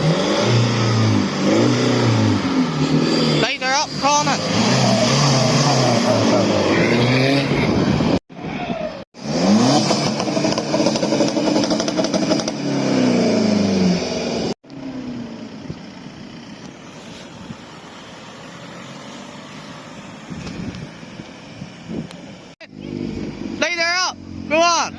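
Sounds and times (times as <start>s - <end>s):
car engines revving hard: 0.0s - 8.2s, 8.9s - 15.6s, 16.8s - 24.9s
engine running steadily: 14.7s - 18.4s.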